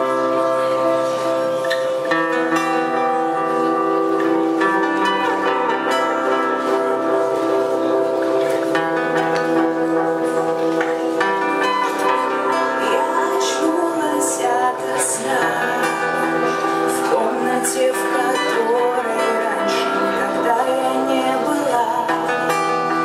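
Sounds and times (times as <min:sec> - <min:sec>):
guitar: 0:00.0 - 0:23.0
sustained instrumental chords: 0:00.0 - 0:23.0
person singing: 0:08.7 - 0:23.0.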